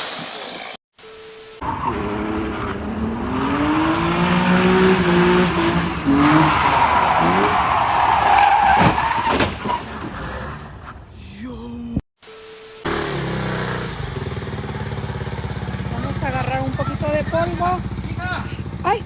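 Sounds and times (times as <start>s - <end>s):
tyres skidding and squealing: 1.6s - 11.2s, 12.9s - 19.0s
engine revving: 1.7s - 7.6s, 12.8s - 19.0s.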